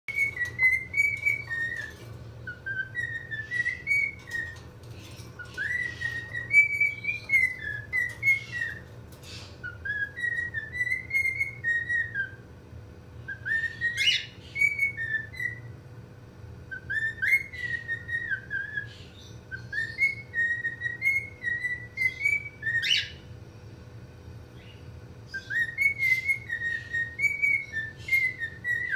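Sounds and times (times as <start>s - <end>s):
cockatiel whistling a tune: 0.1s - 9.0s, 9.6s - 12.4s, 13.2s - 15.7s, 16.7s - 23.2s, 25.3s - 28.9s
faint steady hum: 0.1s - 28.9s.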